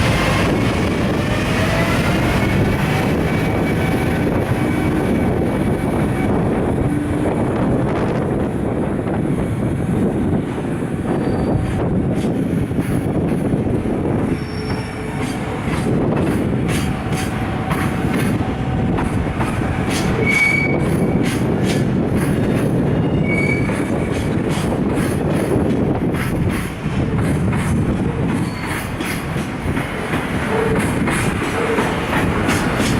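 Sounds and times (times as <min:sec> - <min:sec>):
freight train rumbling past: 0:00.0 - 0:32.9
high wheel squeals: 0:11.1 - 0:11.8, 0:14.3 - 0:15.2, 0:23.0 - 0:23.8.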